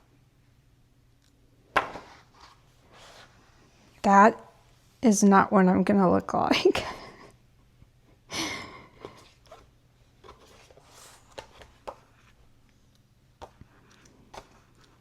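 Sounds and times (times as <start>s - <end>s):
book page turning: 9.5s - 12.4s.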